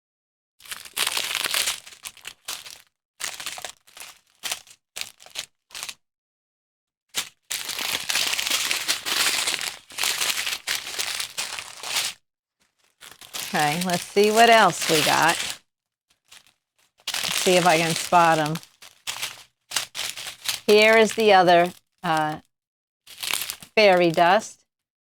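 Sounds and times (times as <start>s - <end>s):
plastic bags crinkling: 7.6s - 12.1s, 12.7s - 15.6s, 16.2s - 22.3s, 23.1s - 24.4s.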